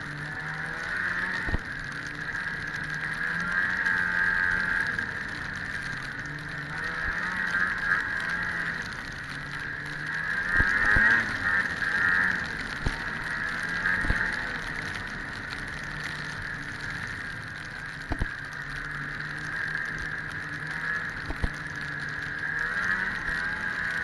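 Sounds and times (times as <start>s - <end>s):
snowmobile engine running: 0.0s - 24.0s.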